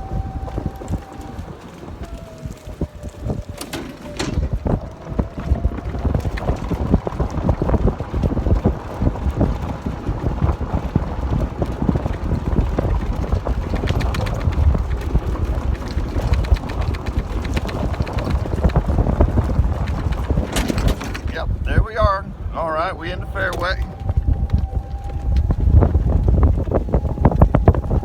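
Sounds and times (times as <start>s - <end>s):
knocks and rattles: 0.0s - 10.3s, 11.4s - 21.7s
wind buffeting microphone: 0.0s - 28.0s.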